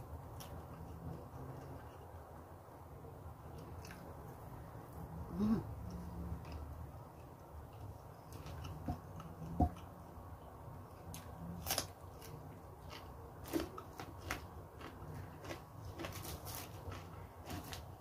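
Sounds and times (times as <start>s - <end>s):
low steady hum: 0.0s - 18.0s
person chewing crunchy food: 5.9s - 10.1s, 10.9s - 18.0s.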